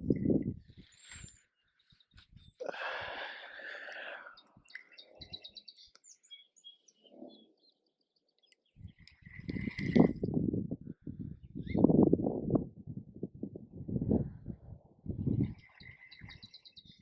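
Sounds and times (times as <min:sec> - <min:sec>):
songbird chirping: 0:00.7 - 0:10.1, 0:15.3 - 0:17.0.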